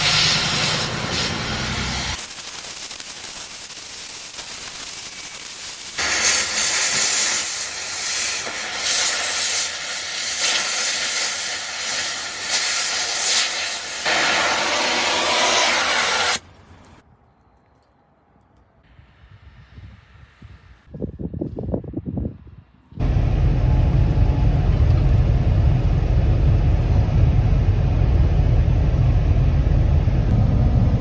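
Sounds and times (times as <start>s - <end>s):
loud hissing of metal cutting: 0.0s - 16.4s.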